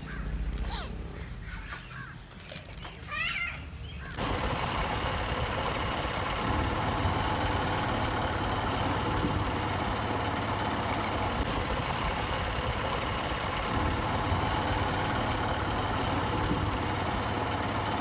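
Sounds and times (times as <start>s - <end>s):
motorcycle engine humming: 3.7s - 18.0s.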